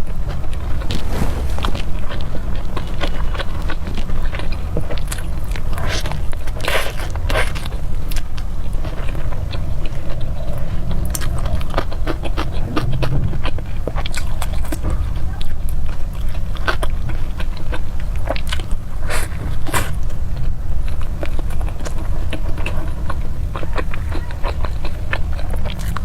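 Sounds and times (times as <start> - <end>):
low rumble: 0.2 - 3.2, 9.1 - 16.3.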